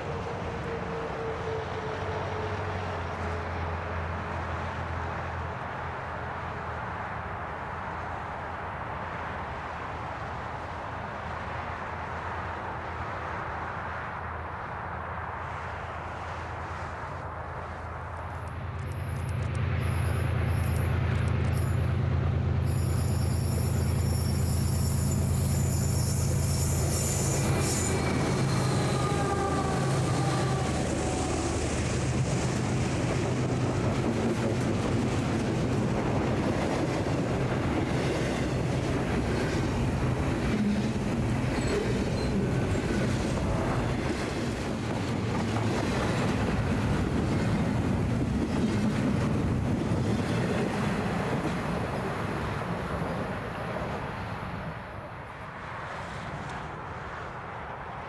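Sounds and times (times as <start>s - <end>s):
locomotive engine drone: 15.8s - 55.1s
freight cars rumbling: 16.0s - 56.9s.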